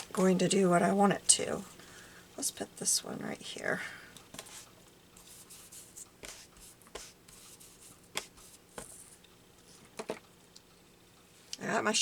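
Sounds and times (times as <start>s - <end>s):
paper rustling and rubbing: 4.3s - 9.8s.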